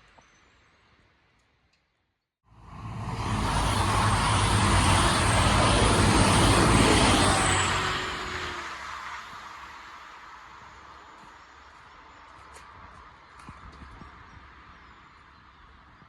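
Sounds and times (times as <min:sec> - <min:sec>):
train passing at speed: 0:02.5 - 0:12.2.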